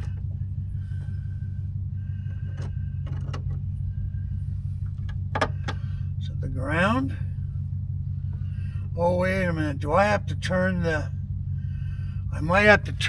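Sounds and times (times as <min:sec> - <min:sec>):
engine droning: 0:00.0 - 0:13.0
sharp clicks and knocks: 0:02.3 - 0:03.6, 0:04.8 - 0:05.9.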